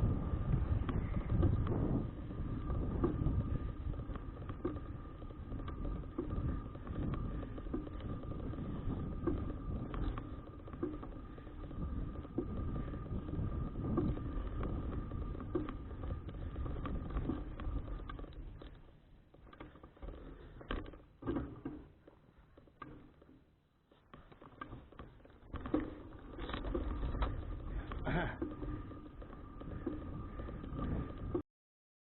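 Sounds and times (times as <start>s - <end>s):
wind buffeting microphone: 0.0s - 18.6s, 26.4s - 31.4s
road and tyre rumble: 0.0s - 18.8s
faint steady whine: 0.0s - 31.4s.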